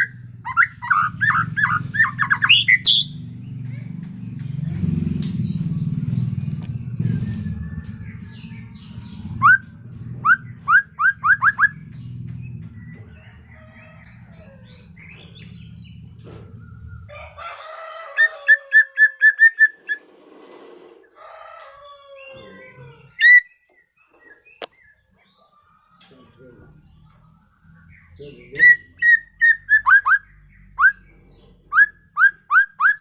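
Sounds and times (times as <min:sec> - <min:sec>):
bird singing whistled notes: 0:00.0 - 0:03.2, 0:07.0 - 0:12.0, 0:26.8 - 0:33.0
low engine rumble: 0:00.0 - 0:17.4, 0:24.2 - 0:32.6.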